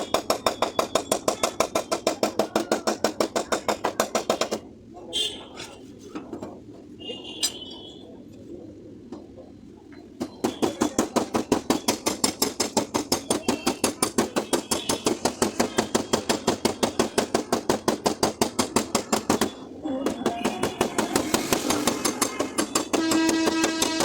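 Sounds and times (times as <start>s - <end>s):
hammer tapping on sheet metal: 0.0s - 4.7s, 10.2s - 24.0s.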